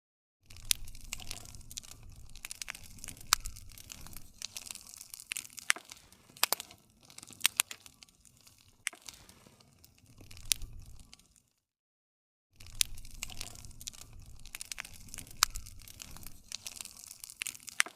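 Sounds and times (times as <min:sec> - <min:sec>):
bonfire crackling and popping: 0:00.4 - 0:11.7, 0:12.6 - 0:17.9
hiss and rumble of flames: 0:00.5 - 0:11.5, 0:12.6 - 0:17.9.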